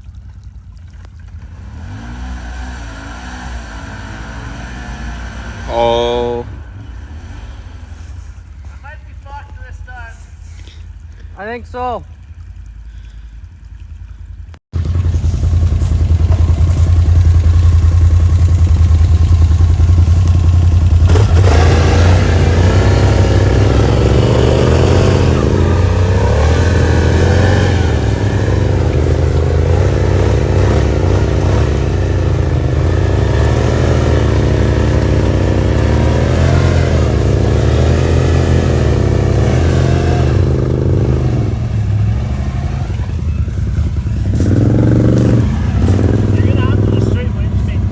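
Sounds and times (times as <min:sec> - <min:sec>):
atv engine revving: 0:01.3 - 0:09.8, 0:14.8 - 0:47.9.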